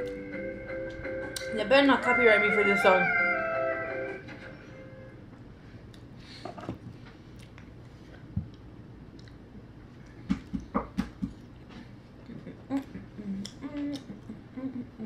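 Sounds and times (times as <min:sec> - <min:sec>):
woman chewing food: 0:07.3 - 0:10.7
wet mouth clicks: 0:08.5 - 0:09.4, 0:12.2 - 0:14.4
woman humming with full mouth: 0:12.3 - 0:15.0.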